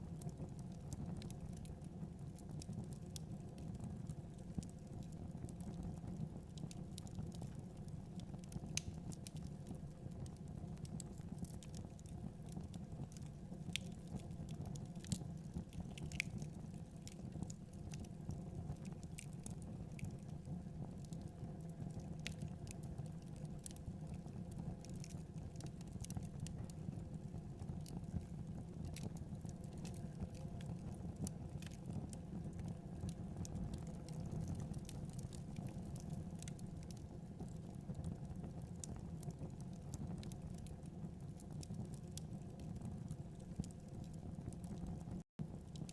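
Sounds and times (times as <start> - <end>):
low rumble of flames: 0.0 - 45.9
wood fire crackling and popping: 0.0 - 45.9.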